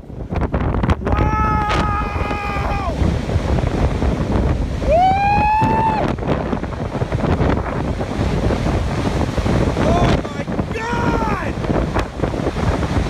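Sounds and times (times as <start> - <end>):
wind buffeting microphone: 0.0 - 13.0
person shouting: 1.1 - 3.0, 4.9 - 6.0, 9.8 - 11.6.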